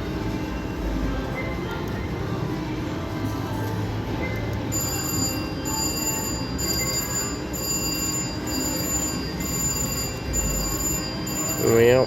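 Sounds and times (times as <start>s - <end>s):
slot machines ringing: 4.7s - 12.0s.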